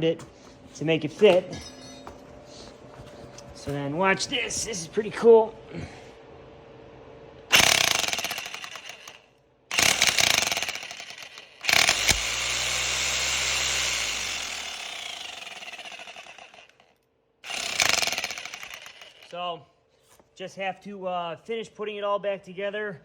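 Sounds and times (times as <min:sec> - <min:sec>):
hammer drill running: 0:07.5 - 0:19.4.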